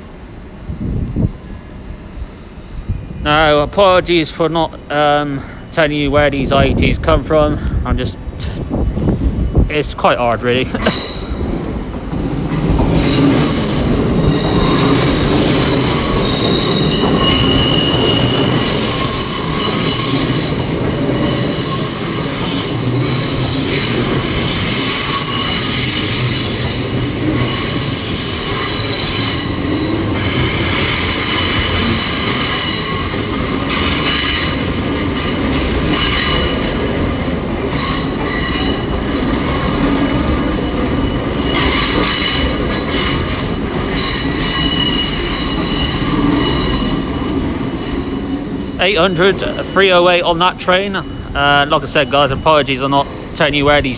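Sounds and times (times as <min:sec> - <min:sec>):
train rolling rumble: 0:00.0 - 0:53.9
train wheels squealing: 0:02.2 - 0:05.8, 0:10.8 - 0:11.6, 0:12.5 - 0:53.9.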